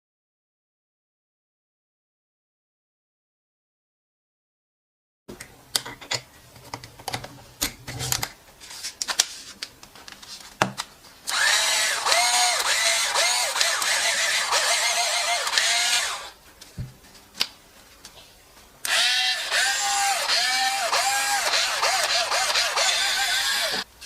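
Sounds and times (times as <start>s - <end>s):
cordless drill motor running: 11.3s - 16.4s, 18.9s - 23.9s.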